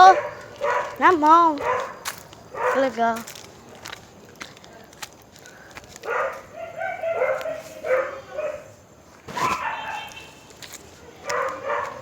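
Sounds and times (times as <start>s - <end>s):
animal crying loudly: 9.3s - 10.4s
animal whining calls: 9.3s - 10.4s.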